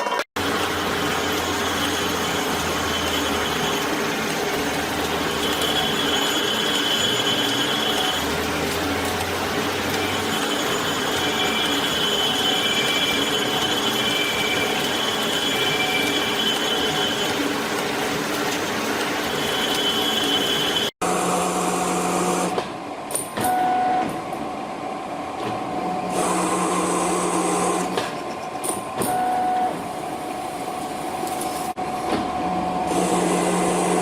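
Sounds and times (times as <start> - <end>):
high machine whine: 0.0 - 22.6.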